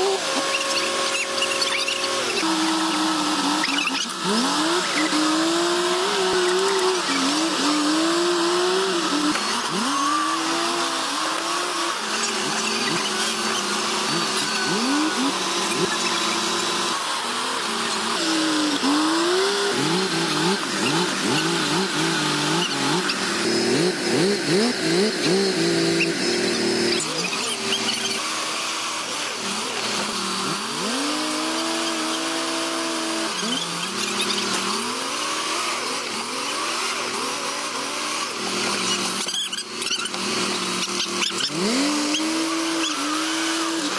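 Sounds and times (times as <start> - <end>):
noisy mechanical clatter: 0.0 - 7.9, 8.6 - 43.9
bulldozer diesel engines revving: 0.0 - 43.9.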